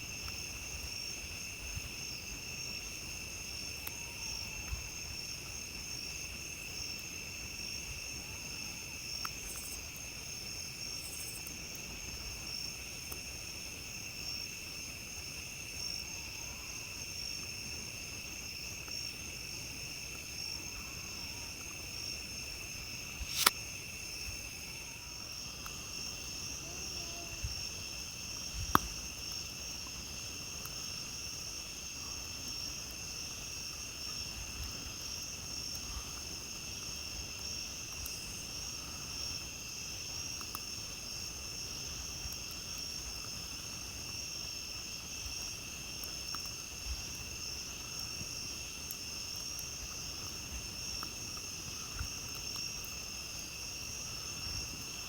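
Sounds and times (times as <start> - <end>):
crickets and night insects chirping: 0.0 - 55.0
campfire crackling and popping: 21.6 - 26.5, 27.6 - 31.8, 39.2 - 55.0.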